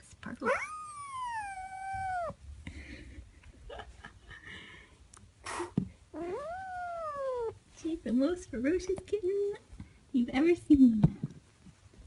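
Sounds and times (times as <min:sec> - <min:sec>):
kitten meowing: 0:00.5 - 0:02.4, 0:06.2 - 0:07.6.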